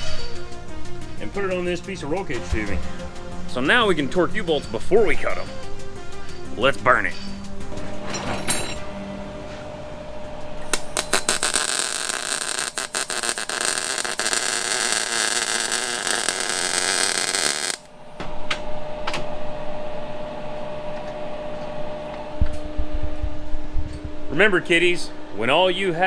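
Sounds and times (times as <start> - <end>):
welding arc crackling: 10.5 - 17.9.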